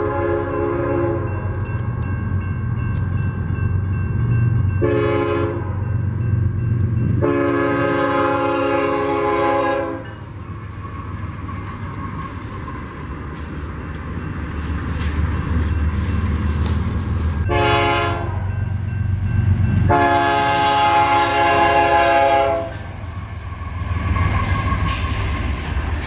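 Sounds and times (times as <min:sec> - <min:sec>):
locomotive air horn: 0:00.0 - 0:01.3, 0:04.8 - 0:05.8, 0:07.2 - 0:10.2, 0:17.5 - 0:18.4, 0:19.9 - 0:23.1
train wheels rolling on rails: 0:00.0 - 0:04.9, 0:05.8 - 0:17.5, 0:18.7 - 0:26.0
diesel locomotive engines rumbling: 0:00.0 - 0:26.0.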